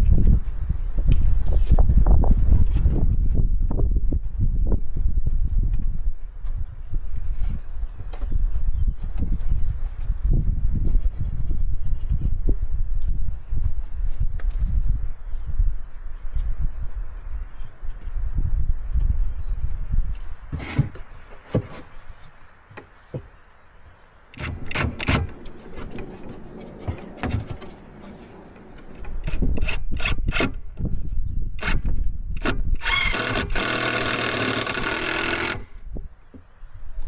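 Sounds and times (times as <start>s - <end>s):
knocks scrapes and rubbing on wood: 20.5s - 23.4s, 24.3s - 30.5s
motorised tool running: 24.3s - 30.6s, 31.6s - 35.9s.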